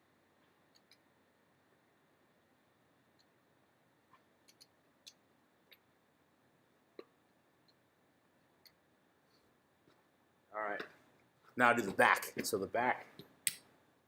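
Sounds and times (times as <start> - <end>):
faint clicks and ticks: 0.4 - 1.1, 4.1 - 5.9.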